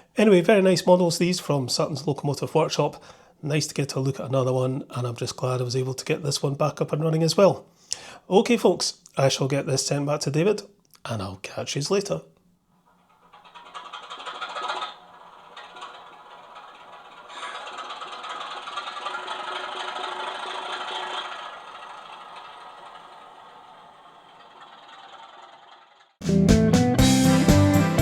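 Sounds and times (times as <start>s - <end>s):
model train running on track: 13.0s - 26.2s.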